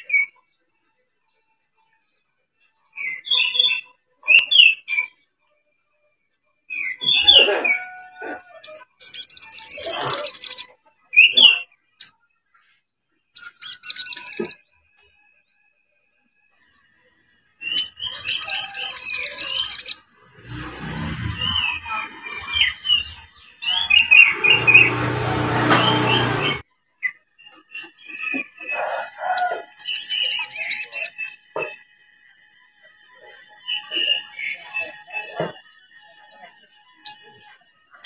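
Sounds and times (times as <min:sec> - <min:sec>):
bird trills and whistles: 0:06.7 - 0:12.1, 0:13.4 - 0:14.6, 0:17.6 - 0:20.0, 0:27.0 - 0:31.8, 0:37.0 - 0:37.4
low hum: 0:20.2 - 0:26.6.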